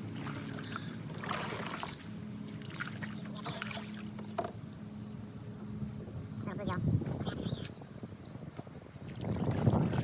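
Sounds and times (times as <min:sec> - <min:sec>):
water splashing and trickling: 0:00.0 - 0:04.7, 0:08.6 - 0:10.0
steady low hum: 0:00.0 - 0:10.0.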